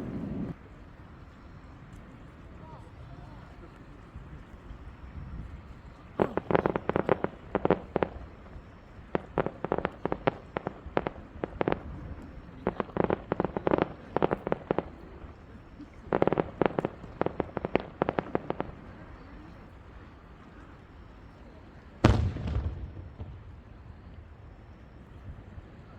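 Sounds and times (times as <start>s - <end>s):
fireworks popping and crackling: 0.0s - 0.6s, 6.0s - 19.4s, 22.0s - 25.2s.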